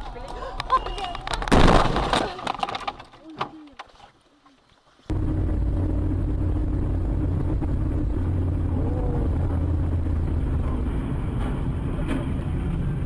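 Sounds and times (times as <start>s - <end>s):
car engine rumble: 5.1s - 13.0s
road noise: 5.1s - 13.0s.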